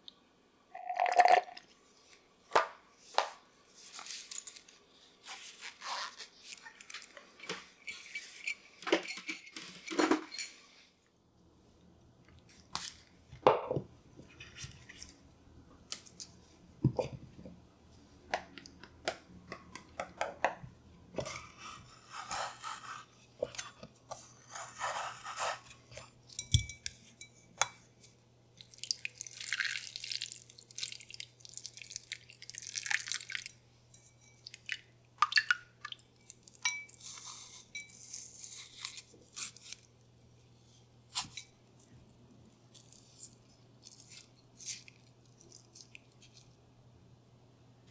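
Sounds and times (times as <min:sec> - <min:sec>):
dishes and utensils clinking: 0:06.8 - 0:10.7, 0:36.6 - 0:38.2.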